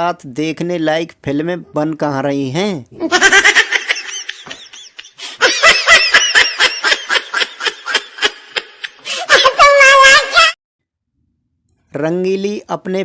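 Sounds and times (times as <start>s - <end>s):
high-pitched voice laughing: 5.2s - 10.6s.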